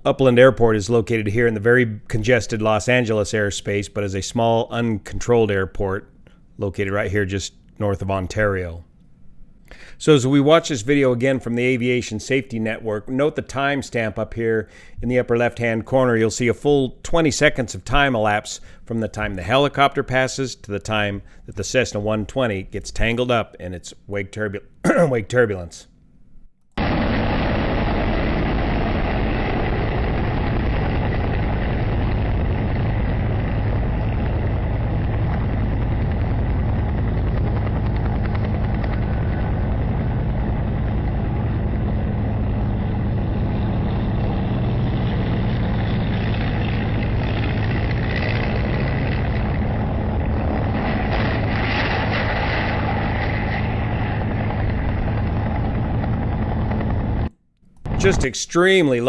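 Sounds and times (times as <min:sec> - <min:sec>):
aircraft engine and rotor drone: 0:26.8 - 0:57.3.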